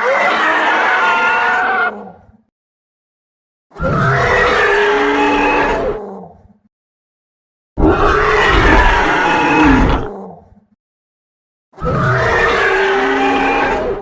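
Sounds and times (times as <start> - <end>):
deep monster roar: 7.8 - 10.4.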